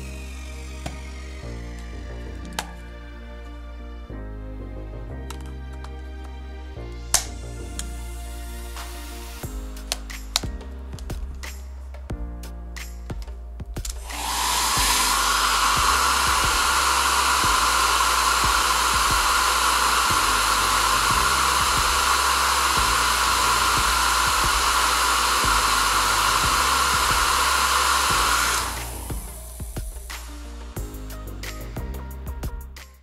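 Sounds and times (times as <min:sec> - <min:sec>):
hair dryer blowing: 0:00.0 - 0:03.1, 0:07.2 - 0:11.6, 0:13.8 - 0:32.0.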